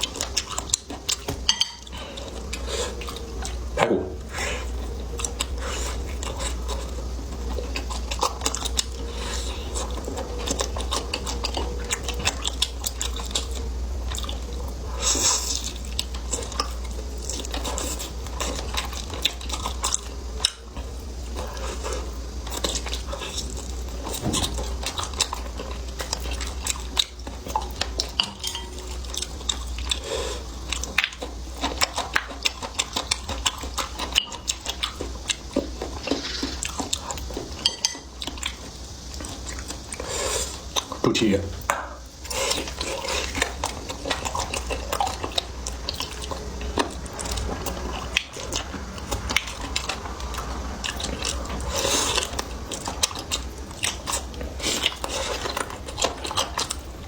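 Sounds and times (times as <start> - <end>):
person chewing: 0.0 - 57.0
utensils clicking on dishes: 1.2 - 2.0, 28.0 - 29.2, 37.6 - 38.3.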